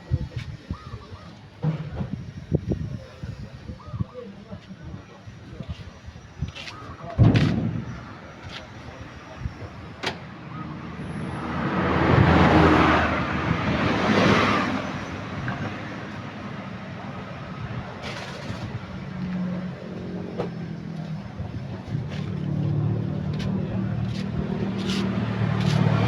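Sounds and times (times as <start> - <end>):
vehicle passing by: 11.0 - 15.6, 22.0 - 26.0.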